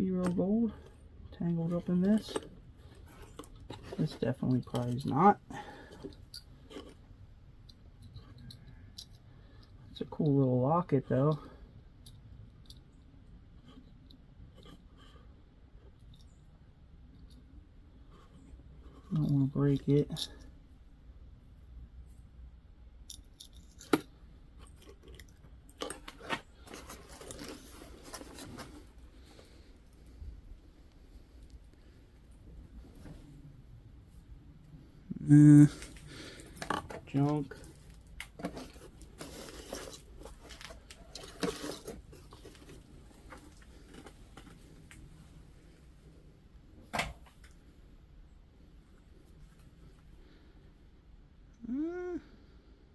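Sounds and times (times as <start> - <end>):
metal jewelry clicking and rattling: 23.1 - 24.0
light scraping and rustling: 25.8 - 30.4, 35.7 - 44.9.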